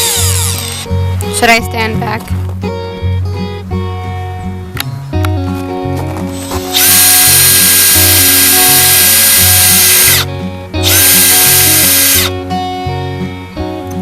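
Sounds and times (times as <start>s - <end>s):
electric drill whining: 0.0s - 0.9s, 6.4s - 12.4s
guitar background music: 0.0s - 14.0s.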